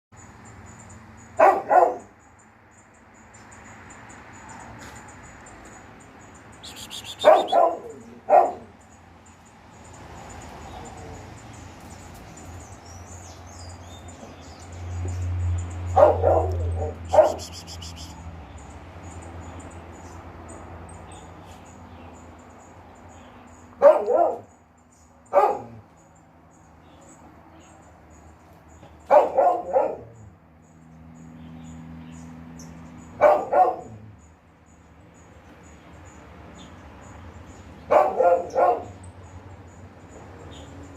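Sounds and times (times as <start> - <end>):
small birds chirping: 0.2 - 40.9
dog barking: 1.4 - 2.1, 7.0 - 8.7, 15.9 - 17.6, 23.8 - 24.5, 25.3 - 25.8, 29.1 - 30.2, 33.2 - 34.1, 37.9 - 39.0.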